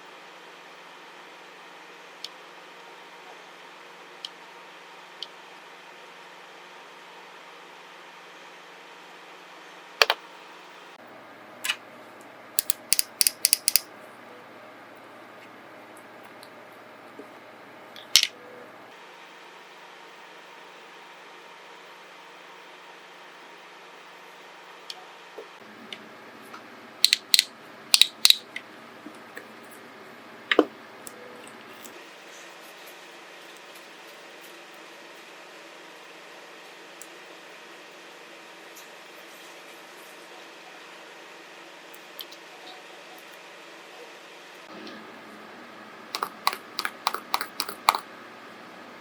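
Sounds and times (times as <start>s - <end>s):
small hard objects clicking: 12.6s - 13.9s, 46.2s - 48.0s.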